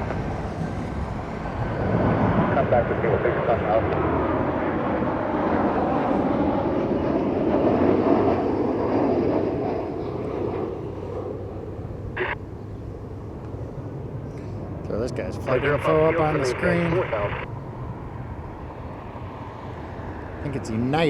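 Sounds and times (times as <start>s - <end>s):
jet airliner engines roaring: 0.0s - 21.0s.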